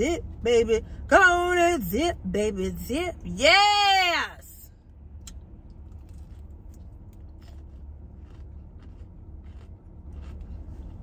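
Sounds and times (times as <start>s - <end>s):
low rumble inside car: 0.0s - 11.0s
chewing crispy chicken: 5.7s - 11.0s.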